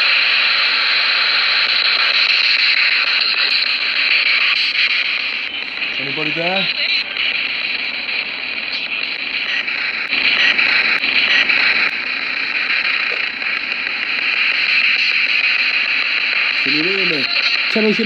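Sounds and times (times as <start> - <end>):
radio static hiss: 0.0 - 18.0
radio channel clicks: 10.4 - 14.7.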